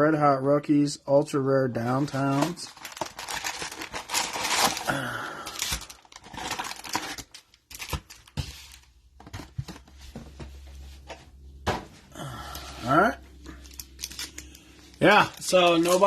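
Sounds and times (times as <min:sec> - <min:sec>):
packaging tearing and crinkling: 0:02.1 - 0:08.8, 0:13.6 - 0:16.0.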